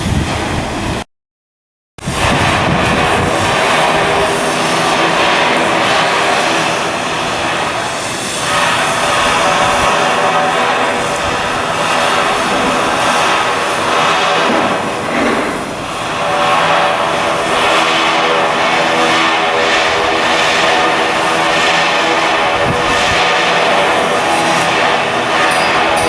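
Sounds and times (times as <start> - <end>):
machinery drone with steady tones: 2.0 - 26.0.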